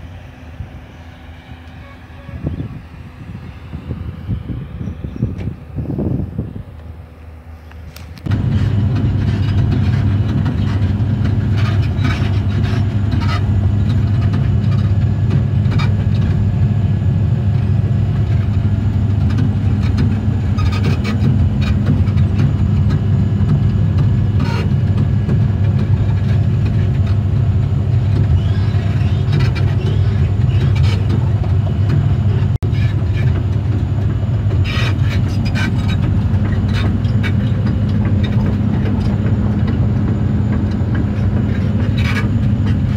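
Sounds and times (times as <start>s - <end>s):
diesel engine running: 0.0s - 42.9s
machine clicks and squeaks: 19.3s - 23.6s, 28.0s - 42.9s.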